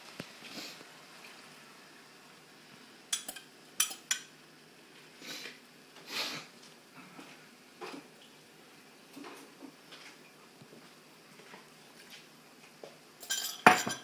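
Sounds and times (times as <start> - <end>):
utensils clinking on dishes: 3.1 - 4.3, 13.2 - 14.0.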